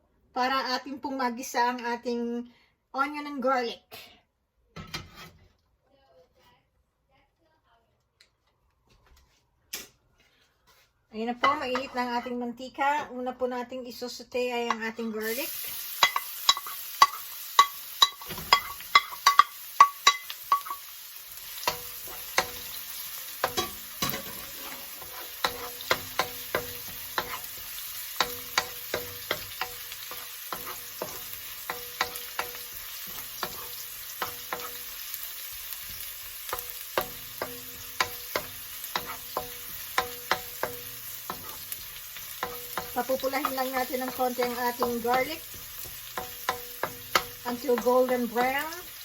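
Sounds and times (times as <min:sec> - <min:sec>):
utensil scraping a pan: 0:04.9 - 0:05.6, 0:23.4 - 0:34.9, 0:35.8 - 0:48.7
garlic sizzling in oil: 0:14.7 - 0:49.0.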